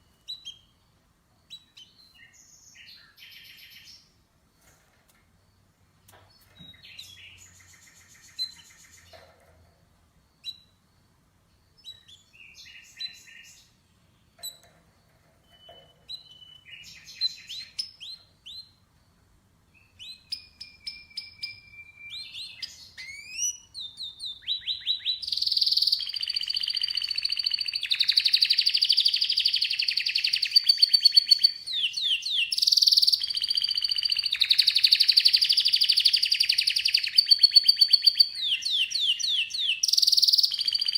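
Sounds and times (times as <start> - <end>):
canary singing: 11.8 - 18.9, 19.7 - 40.9.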